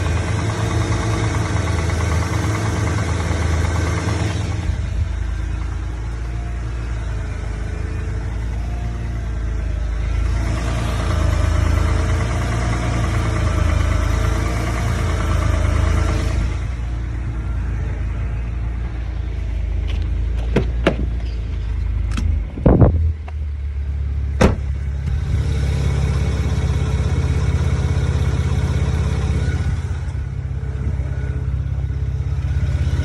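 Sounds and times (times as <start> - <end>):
car engine knocking: 0.0 - 8.9, 10.0 - 17.8, 24.0 - 30.4.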